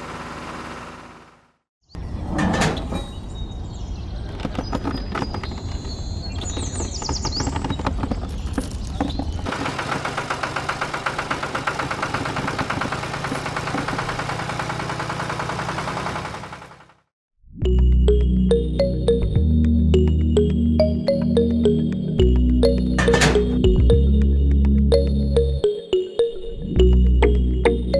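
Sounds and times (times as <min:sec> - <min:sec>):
small engine rattling: 0:04.3 - 0:17.1.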